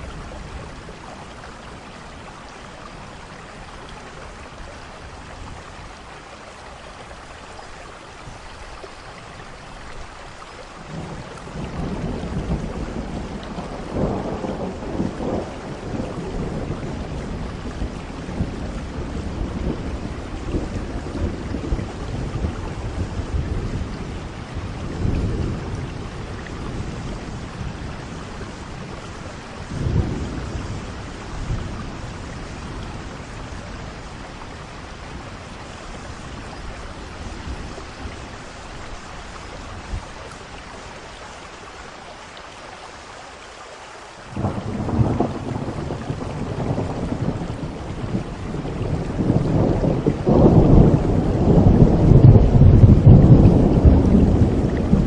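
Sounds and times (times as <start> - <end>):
steady rain: 0.0 - 55.0
rolling thunder: 10.9 - 40.2, 44.3 - 55.0
loud thunder crack: 44.4 - 55.0.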